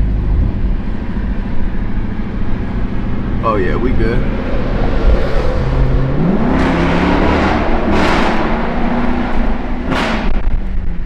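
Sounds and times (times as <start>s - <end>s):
car engine accelerating in tunnel: 0.0s - 11.0s
rush of exhaust noise: 2.0s - 9.9s.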